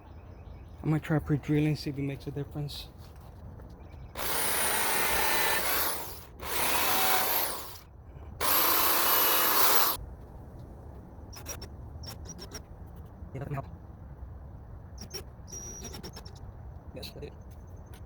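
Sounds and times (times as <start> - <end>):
power drill whining: 4.2 - 7.8, 8.4 - 10.0.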